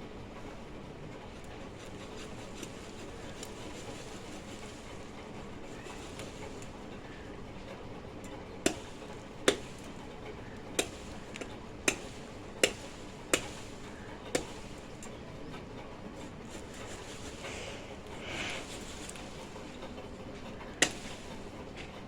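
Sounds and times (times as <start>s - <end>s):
knife chopping fish: 8.6s - 9.9s, 10.7s - 14.9s, 20.8s - 21.4s.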